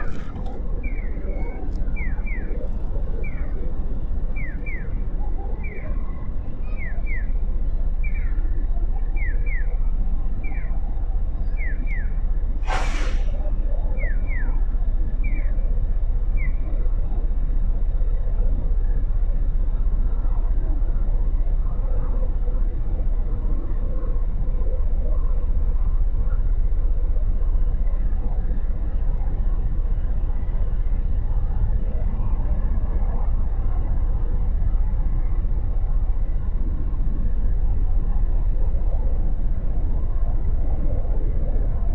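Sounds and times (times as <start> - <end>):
wind noise: 0.0 - 6.7, 16.6 - 41.9
short hiss: 12.6 - 13.4.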